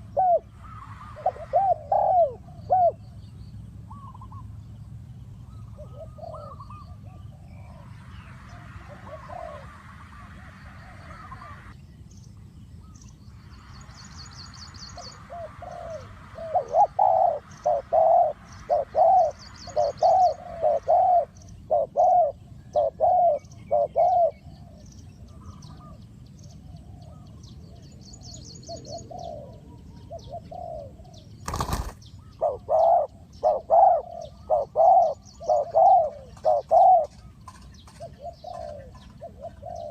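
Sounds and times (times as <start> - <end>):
dove cooing: 0.0 - 3.2, 5.5 - 11.7, 14.9 - 26.0, 28.7 - 39.9
small birds chirping: 0.0 - 39.9.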